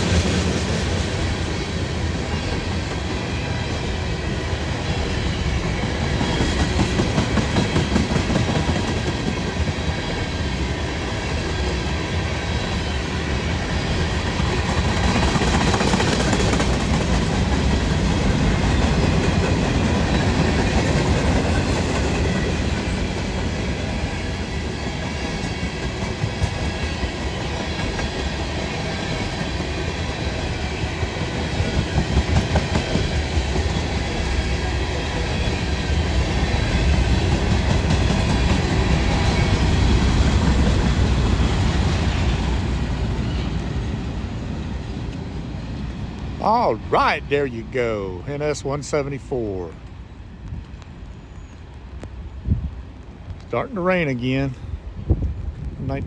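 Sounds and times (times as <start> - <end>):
wheels clacking over rail joints: 0.0 - 12.0, 12.8 - 44.0
freight train rumbling past: 0.0 - 56.0.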